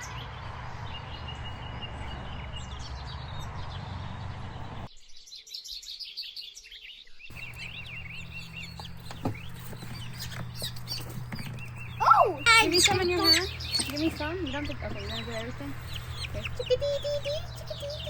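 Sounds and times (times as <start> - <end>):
small birds chirping: 0.0 - 18.0
low background hum: 7.3 - 18.0.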